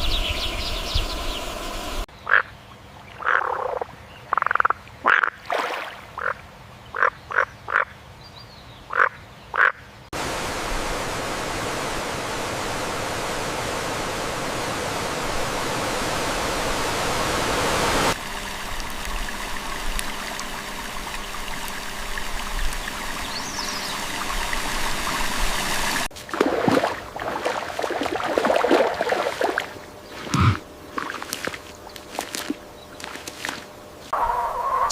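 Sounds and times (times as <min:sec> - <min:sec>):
frogs croaking: 0:00.0 - 0:05.4, 0:06.2 - 0:08.0, 0:08.9 - 0:09.9
rushing water: 0:05.0 - 0:06.3, 0:10.2 - 0:33.8
low hum: 0:10.2 - 0:26.1.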